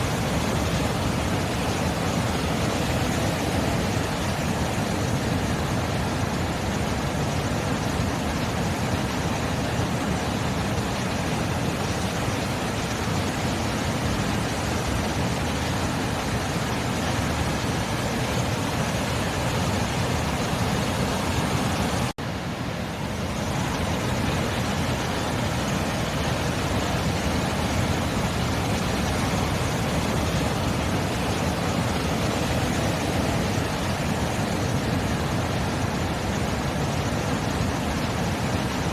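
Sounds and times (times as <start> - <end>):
waves breaking: 0.0 - 38.9.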